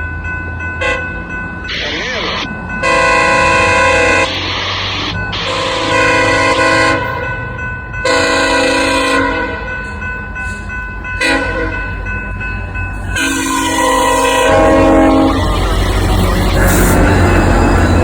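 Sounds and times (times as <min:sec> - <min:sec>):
low train rumble: 0:00.0 - 0:18.0
locomotive air horn blasts: 0:05.4 - 0:07.2, 0:08.1 - 0:09.6, 0:11.2 - 0:11.8, 0:13.1 - 0:18.0.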